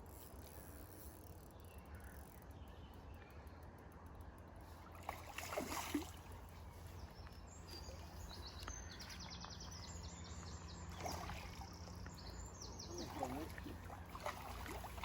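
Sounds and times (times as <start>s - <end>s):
small bird chirping: 6.7s - 14.6s.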